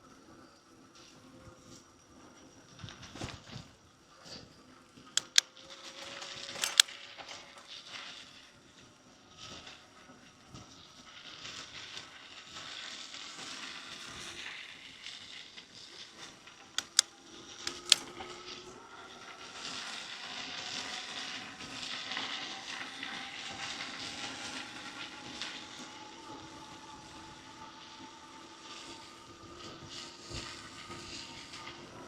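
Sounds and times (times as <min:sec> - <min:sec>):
wind: 0:00.0 - 0:07.7, 0:16.4 - 0:32.0
sharp clicks or knocks: 0:05.2 - 0:05.4, 0:06.6 - 0:06.9, 0:16.8 - 0:17.1, 0:17.7 - 0:18.1
bicycle tyres hissing on road: 0:07.7 - 0:17.3, 0:18.4 - 0:32.0.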